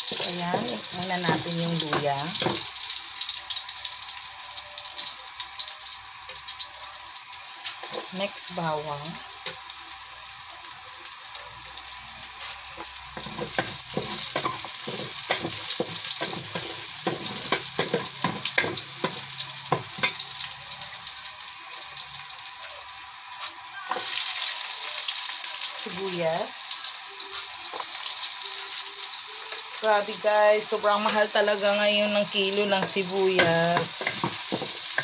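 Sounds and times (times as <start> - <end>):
garlic sizzling in hot oil: 0.0 - 35.0
wooden spatula scraping a pot: 12.4 - 19.1.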